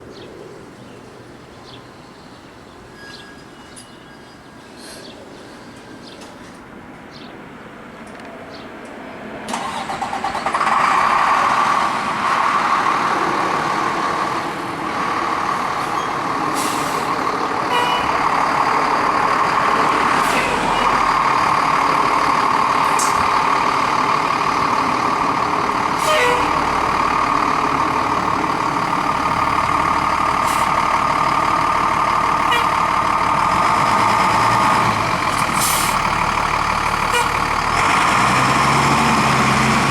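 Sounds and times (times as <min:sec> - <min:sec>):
fire engine diesel engine: 0:09.5 - 0:39.9.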